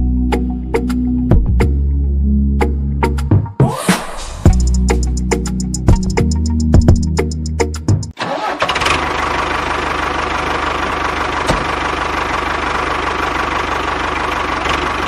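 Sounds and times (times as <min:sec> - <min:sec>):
music: 0:00.0 - 0:08.2.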